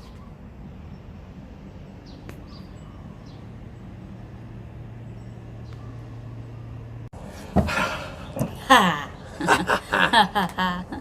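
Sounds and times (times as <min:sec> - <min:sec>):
faint bird chirps: 0:02.0 - 0:03.9, 0:05.0 - 0:06.8.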